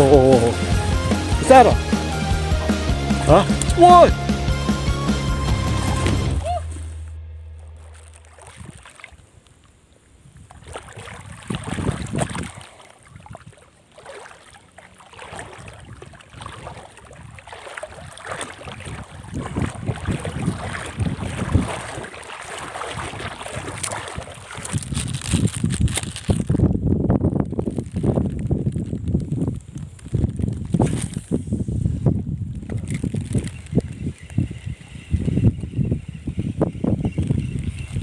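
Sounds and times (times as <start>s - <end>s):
wind buffeting microphone: 10.1s - 13.8s, 15.1s - 38.0s.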